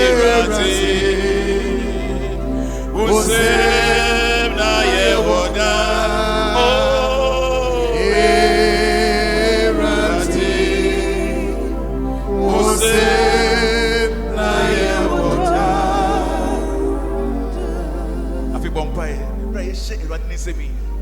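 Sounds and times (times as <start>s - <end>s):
choir singing a hymn: 0.0s - 20.1s.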